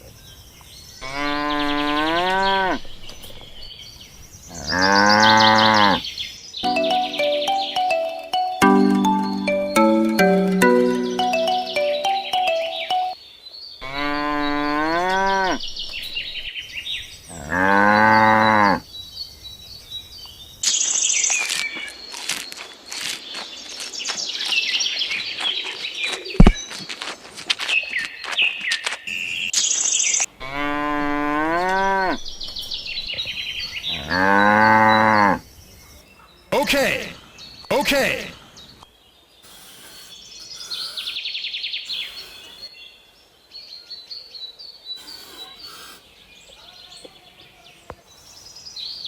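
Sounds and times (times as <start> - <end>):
birds chirping: 0.0 - 49.0
cows mooing: 1.0 - 2.9, 4.5 - 6.0, 13.8 - 15.7, 30.4 - 32.7
high chirps and clicks: 6.6 - 13.2.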